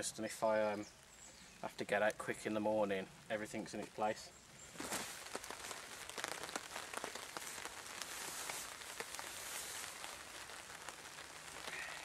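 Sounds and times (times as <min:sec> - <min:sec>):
faint hiss: 0:00.0 - 0:12.0
raindrops pattering on a tarp: 0:00.0 - 0:12.0
nylon fabric rustling: 0:04.7 - 0:12.0.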